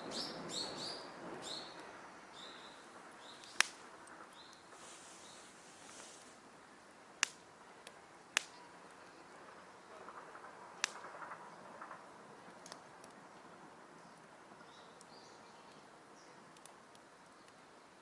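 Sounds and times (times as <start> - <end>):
campfire wood crackling: 0.0 - 18.0
faint steady hiss: 0.0 - 18.0
sharp fire pops: 1.3 - 6.4, 7.2 - 13.2.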